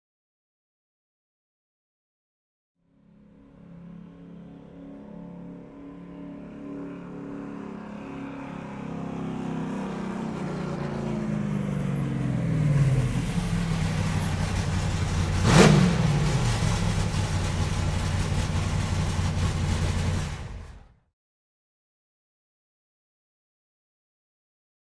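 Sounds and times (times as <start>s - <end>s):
car engine passing by: 4.2s - 21.0s.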